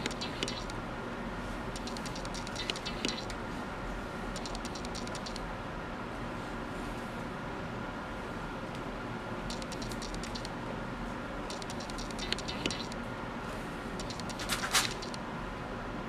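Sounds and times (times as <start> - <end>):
small clicks and scratches: 0.0 - 0.8, 1.8 - 3.4, 4.4 - 5.4, 9.5 - 10.5, 11.5 - 13.0, 14.0 - 15.2
steady hum: 0.0 - 16.0.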